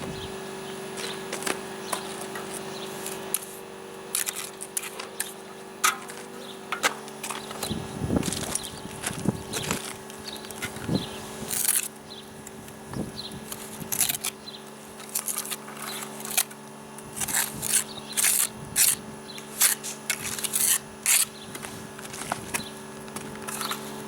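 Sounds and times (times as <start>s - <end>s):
steady low hum: 0.0s - 24.0s
trowel scraping mortar: 1.0s - 12.0s, 13.4s - 14.4s, 15.0s - 22.6s.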